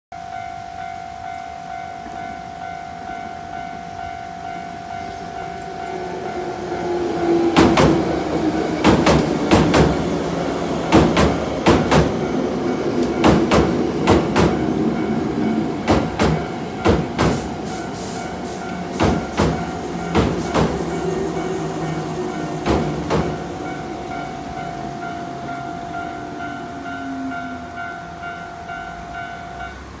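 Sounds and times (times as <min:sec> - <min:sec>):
low train hum: 0:00.1 - 0:30.0
level-crossing alarm bell ringing: 0:00.2 - 0:07.5, 0:11.4 - 0:30.0
train wheels clattering over rail joints: 0:07.4 - 0:17.8, 0:18.4 - 0:23.7.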